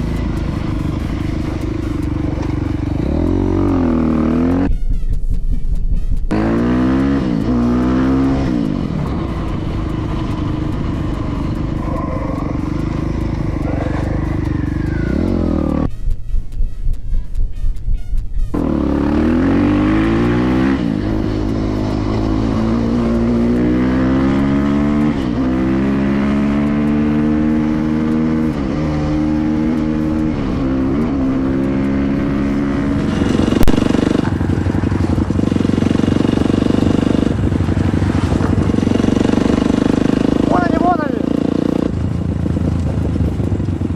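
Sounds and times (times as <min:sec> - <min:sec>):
motorcycle engine accelerating: 0:00.0 - 0:43.9
rushing wind noise: 0:00.0 - 0:43.9
sharp crack: 0:32.5 - 0:42.0.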